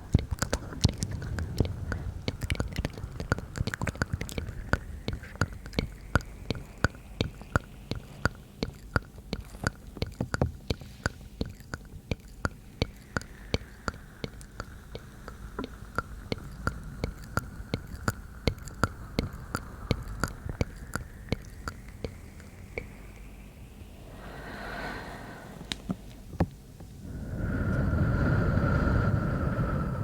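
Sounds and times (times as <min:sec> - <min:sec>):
faint whispering: 0:00.0 - 0:10.0
wet tongue and mouth clicks: 0:00.0 - 0:23.8.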